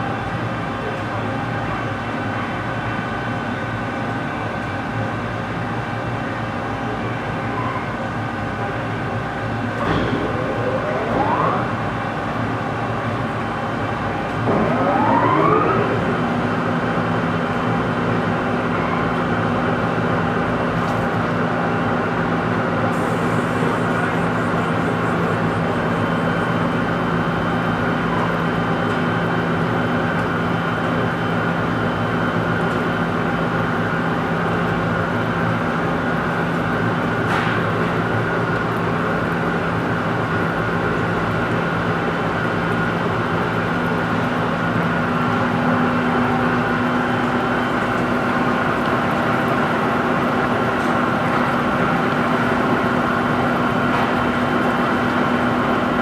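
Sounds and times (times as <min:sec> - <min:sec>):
lathe whine rising in pitch: 0:09.8 - 0:13.1, 0:14.4 - 0:17.3.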